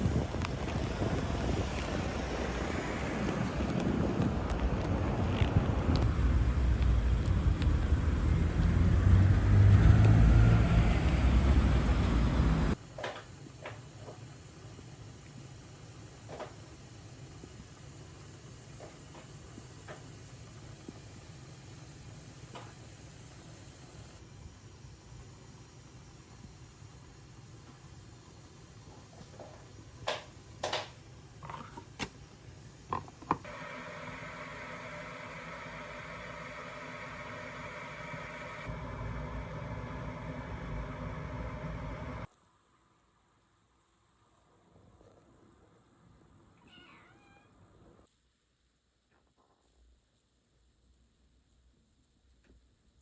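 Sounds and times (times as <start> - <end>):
road vehicle rumble: 0.0 - 12.8
steady mechanical hum: 0.0 - 42.3.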